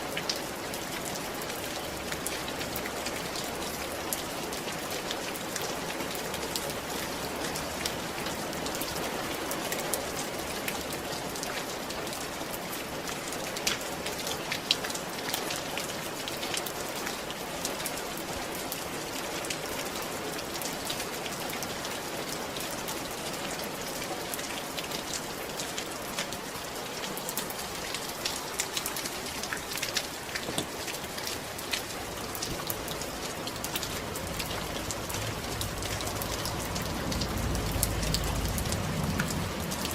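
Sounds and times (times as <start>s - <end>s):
rain hissing on a roof: 0.0s - 39.9s
raindrops tapping: 24.9s - 39.9s.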